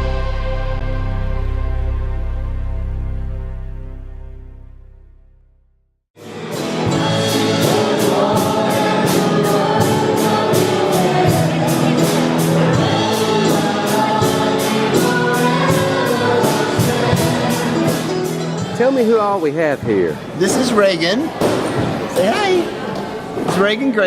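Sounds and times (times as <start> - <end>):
gospel choir singing over a beat: 6.2 - 18.7.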